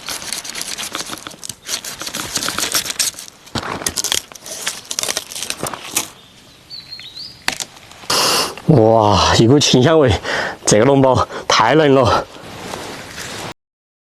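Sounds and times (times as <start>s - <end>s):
thorny stems snapping: 0.9s - 6.1s.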